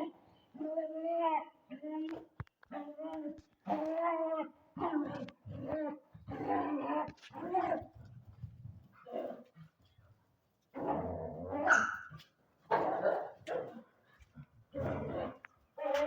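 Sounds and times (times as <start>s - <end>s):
dog barking: 11.6s - 13.8s.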